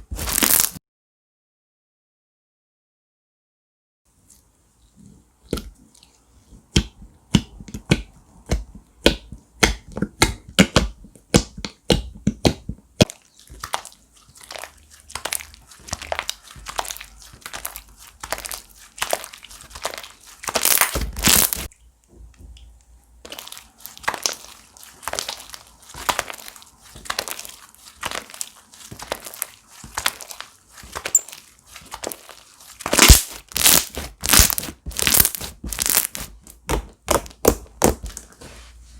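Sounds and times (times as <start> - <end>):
slime crackling squeezes: 0.2 - 0.8, 13.6 - 21.7, 23.3 - 36.3
slime squishing with wet clicks: 5.4 - 37.9.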